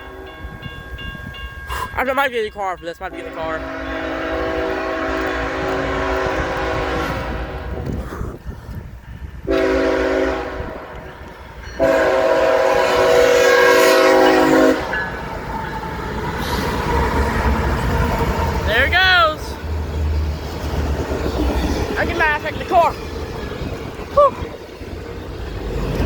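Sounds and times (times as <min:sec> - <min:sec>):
train rumbling past: 0:00.0 - 0:26.0
locomotive horn blasts: 0:03.2 - 0:07.8, 0:09.4 - 0:11.1, 0:11.8 - 0:15.0.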